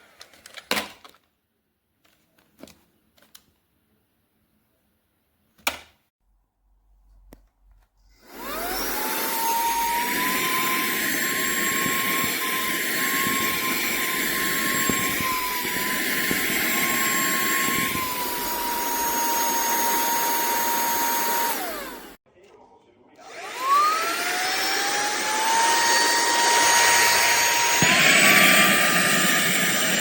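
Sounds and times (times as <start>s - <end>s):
handheld vacuum cleaner whine: 8.1s - 22.2s, 23.2s - 30.0s.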